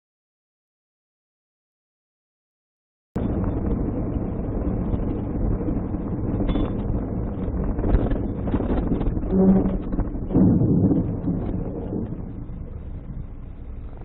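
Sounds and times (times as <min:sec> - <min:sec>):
car road and engine noise: 0:03.2 - 0:14.0.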